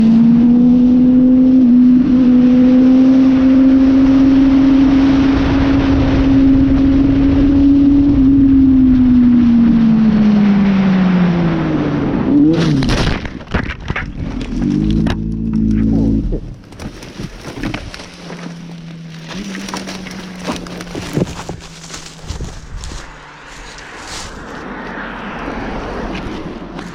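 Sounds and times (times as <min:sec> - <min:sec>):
motorcycle engine at high revs: 0:00.0 - 0:12.9, 0:17.4 - 0:25.2
motorcycle crashing: 0:12.5 - 0:23.0.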